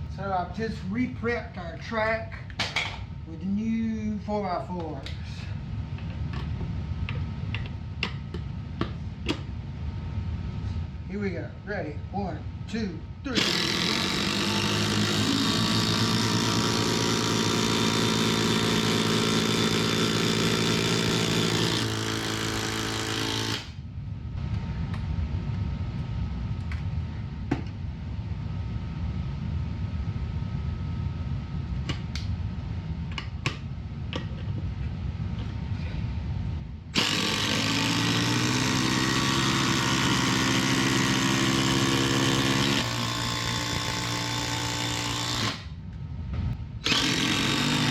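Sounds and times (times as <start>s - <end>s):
impact drivers hammering fasteners: 13.4s - 23.7s, 46.8s - 47.9s
low rumble: 23.8s - 37.0s, 45.7s - 46.9s.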